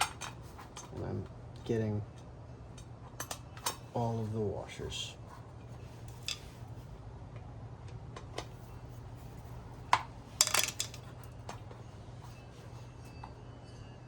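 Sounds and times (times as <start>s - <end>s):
steady low hum: 0.0s - 14.0s
metal washers clinking: 6.1s - 6.6s, 10.3s - 11.3s.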